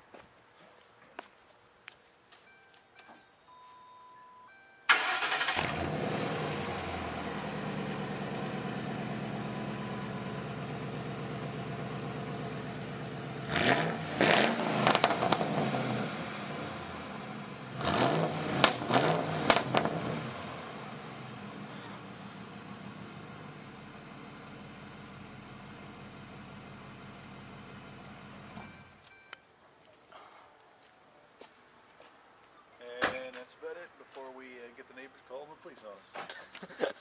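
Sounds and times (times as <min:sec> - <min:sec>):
v eight engine starting and revving: 0:04.9 - 0:23.3.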